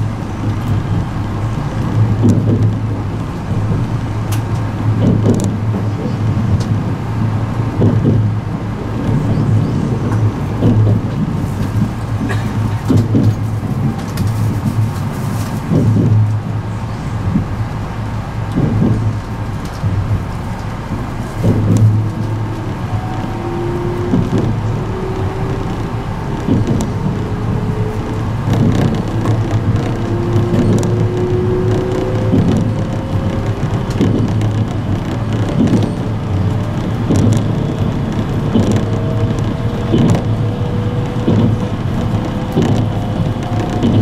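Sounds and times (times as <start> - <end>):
train wheels rumbling on rail: 0.0 - 44.0
wheels knocking over rail joints: 18.4 - 44.0.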